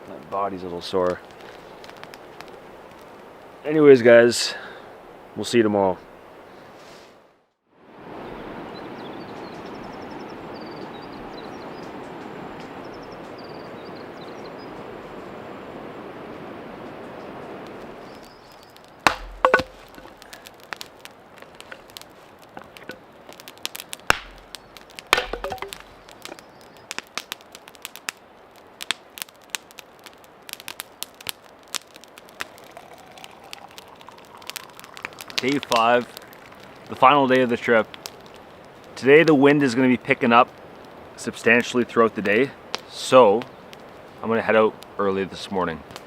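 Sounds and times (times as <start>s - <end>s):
small crackling clicks: 0.0s - 3.6s, 17.6s - 44.2s, 45.7s - 46.0s
firewood being chopped: 18.9s - 28.2s.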